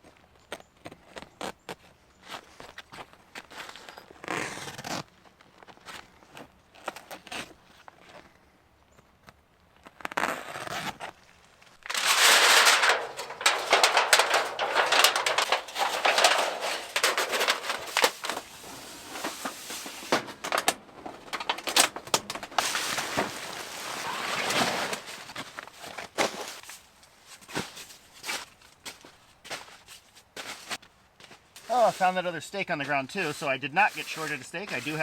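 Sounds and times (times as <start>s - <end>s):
rustling crinkling handling noise: 11.4s - 35.0s.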